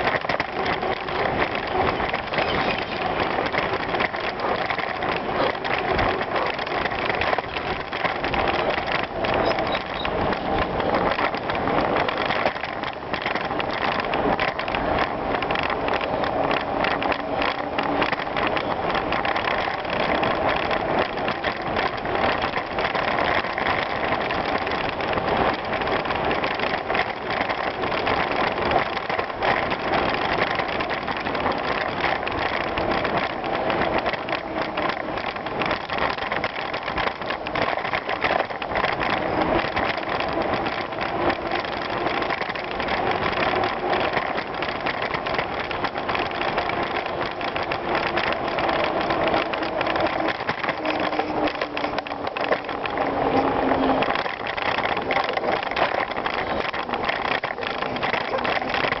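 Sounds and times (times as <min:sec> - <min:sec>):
bicycle tyres on gravel: 0:00.0 - 0:59.0
bike rattles and clicks: 0:00.0 - 0:59.0.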